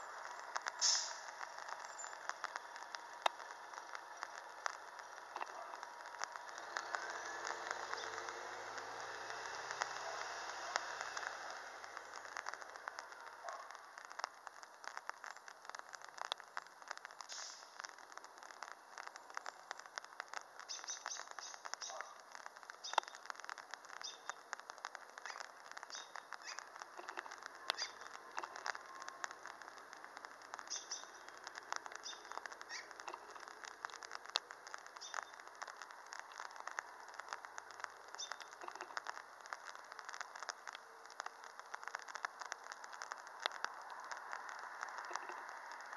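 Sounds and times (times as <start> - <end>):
faint clicks: 0.0 - 45.9
birds chirping: 20.6 - 22.2, 22.8 - 23.3, 23.9 - 24.5, 25.3 - 29.6, 30.6 - 33.5, 34.9 - 35.5, 38.1 - 39.2.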